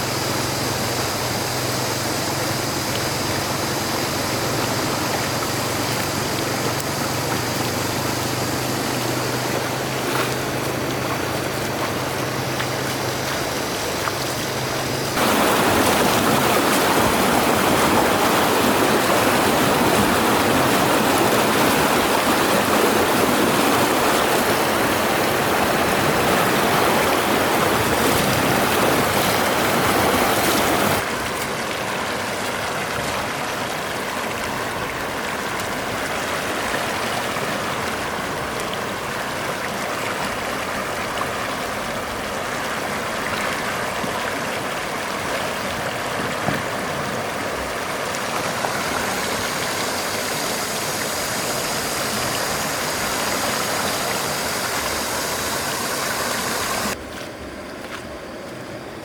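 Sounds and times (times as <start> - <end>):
rushing water: 0.0 - 59.0.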